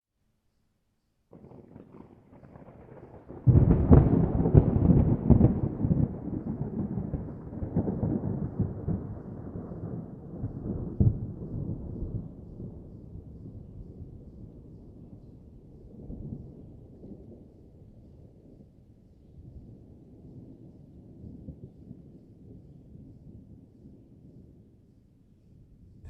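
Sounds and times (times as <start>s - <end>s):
thunder rumbling and cracking: 1.3s - 17.5s.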